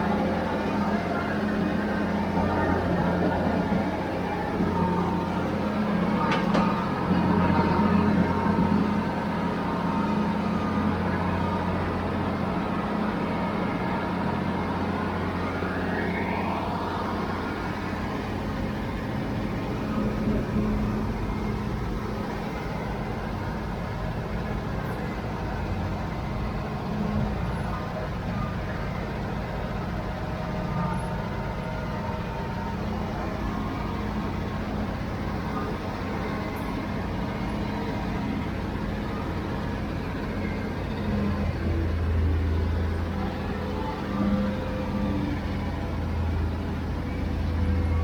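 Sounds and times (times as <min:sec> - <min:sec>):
diesel engine of heavy machinery: 0:00.0 - 0:48.0.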